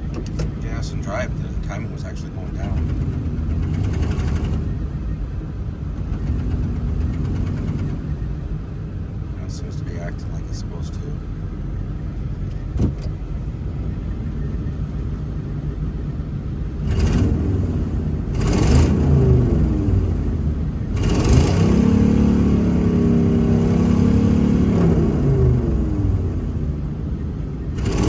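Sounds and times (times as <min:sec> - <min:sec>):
truck engine revving: 0:00.0 - 0:05.0, 0:05.8 - 0:08.8, 0:16.7 - 0:28.0.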